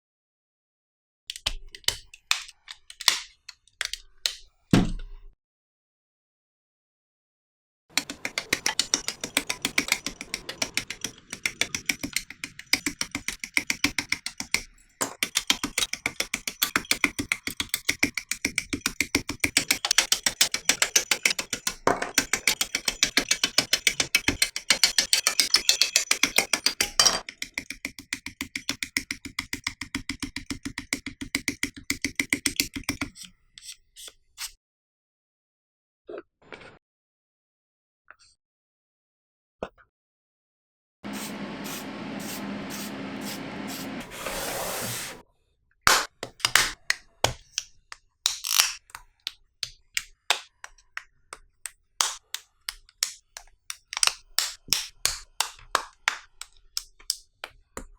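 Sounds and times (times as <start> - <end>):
plastic part being sanded: 7.9 - 34.5, 41.1 - 45.2.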